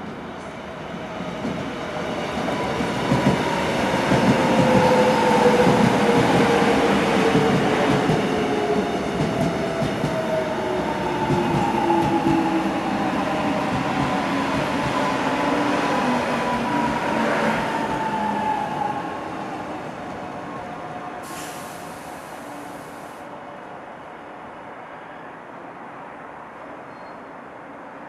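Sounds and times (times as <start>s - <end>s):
train wheels on rails: 0.4s - 18.9s.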